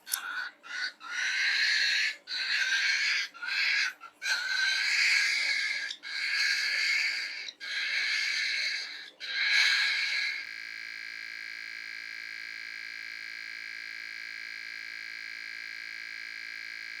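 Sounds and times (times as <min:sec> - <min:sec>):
cockatiel wheezing call: 0:00.2 - 0:10.4
steady electronic tone: 0:10.4 - 0:17.0.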